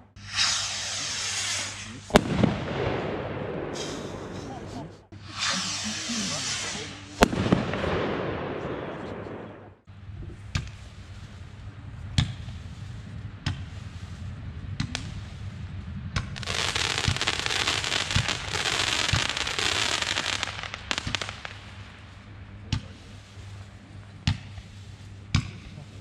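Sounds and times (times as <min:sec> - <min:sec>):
fireworks crackling hiss: 0:00.0 - 0:09.6, 0:10.6 - 0:15.7, 0:16.4 - 0:26.0
fireworks bangs: 0:00.0 - 0:09.8, 0:16.1 - 0:23.8.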